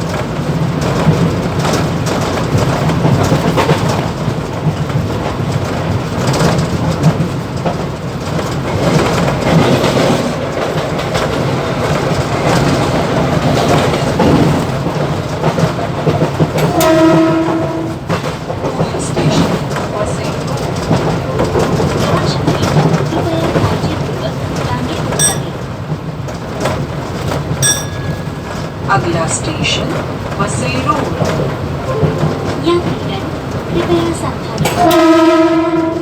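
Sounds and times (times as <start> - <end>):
train rumble and rattle: 0.0 - 36.0
train horn blast: 16.7 - 18.0, 34.6 - 36.0.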